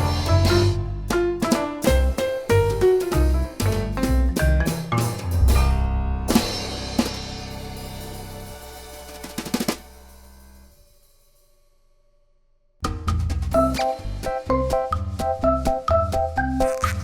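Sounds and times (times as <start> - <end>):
upbeat music with drums: 0.0 - 10.2, 12.8 - 17.0
quick drum hits: 0.0 - 10.3, 12.8 - 14.4.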